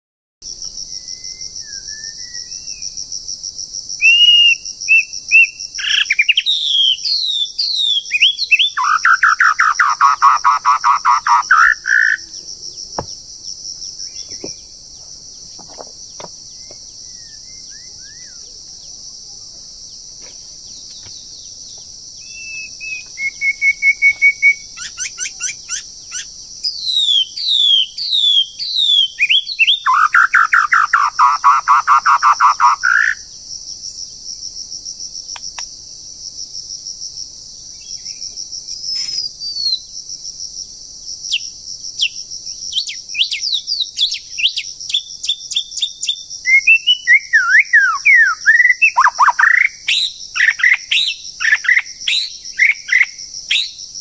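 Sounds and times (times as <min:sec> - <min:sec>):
high insect drone: 0:00.4 - 0:54.0
birds singing: 0:00.9 - 0:03.0, 0:04.0 - 0:33.4, 0:37.8 - 0:39.9, 0:41.3 - 0:53.8.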